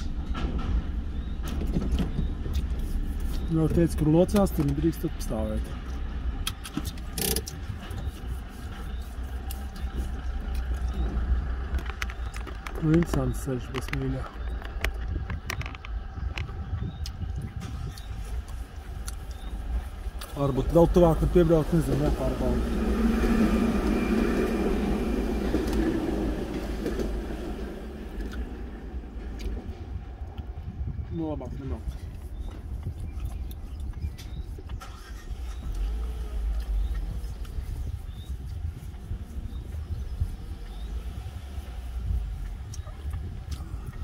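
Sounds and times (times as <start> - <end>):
car engine idling: 17.2 - 30.6
passenger train rumbling past: 17.7 - 31.8.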